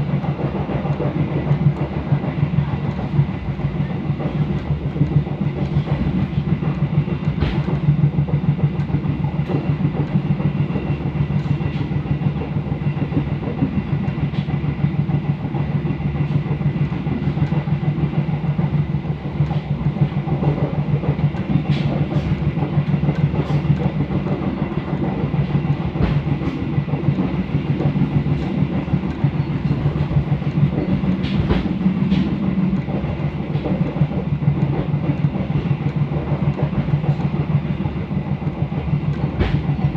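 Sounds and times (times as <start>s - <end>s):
passenger train rumbling: 0.0s - 39.9s
wheels clicking over rails: 16.2s - 39.9s.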